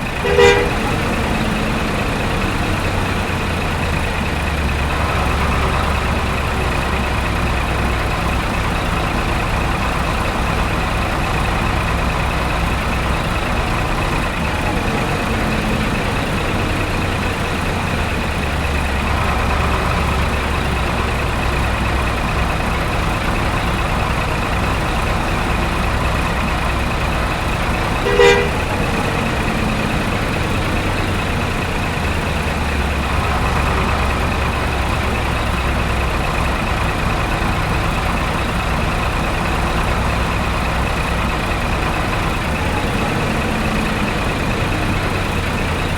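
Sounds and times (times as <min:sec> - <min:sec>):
truck engine running: 0:00.0 - 0:45.9
short horn toot: 0:00.2 - 0:01.0, 0:28.0 - 0:28.8.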